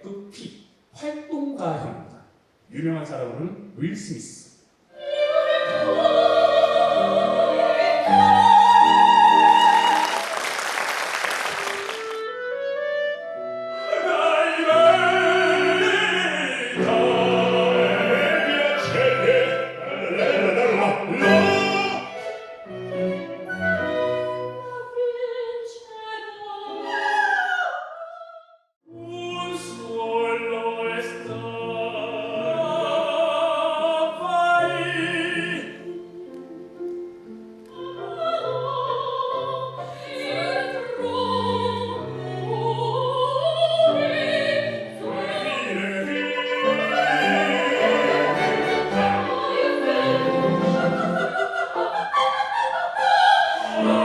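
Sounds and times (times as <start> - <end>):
operatic singing: 4.9 - 12.2, 13.9 - 22.6, 24.6 - 36.4, 37.6 - 54.0
orchestra playing: 11.3 - 24.7, 45.1 - 51.4.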